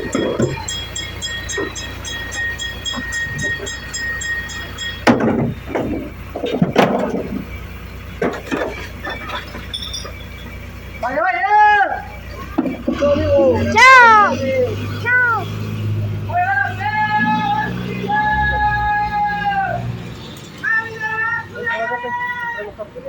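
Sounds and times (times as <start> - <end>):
loud clanks and bangs: 0.0 - 10.7, 12.3 - 14.2
garbage truck engine rumble: 0.0 - 21.9.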